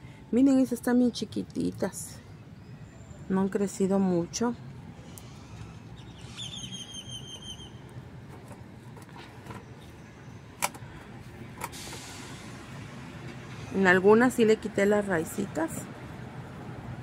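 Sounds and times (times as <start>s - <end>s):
fast bird trill: 6.0s - 7.8s.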